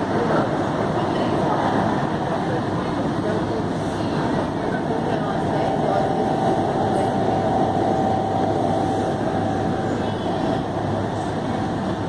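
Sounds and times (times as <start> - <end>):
train ride rumble: 0.0 - 12.0
train high whine: 2.8 - 12.0.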